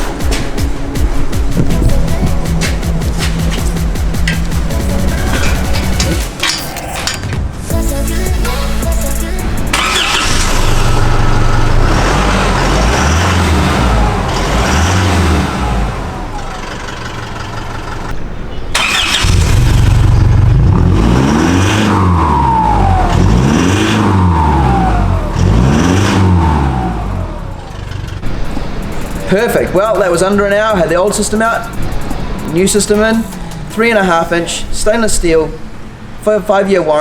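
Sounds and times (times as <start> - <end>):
diesel engine revving: 7.7 - 34.5.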